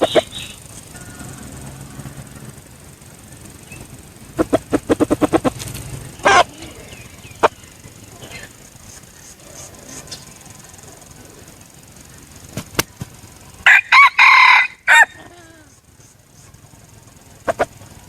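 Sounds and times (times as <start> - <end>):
rooster crowing: 0.0 - 2.8, 13.6 - 15.7.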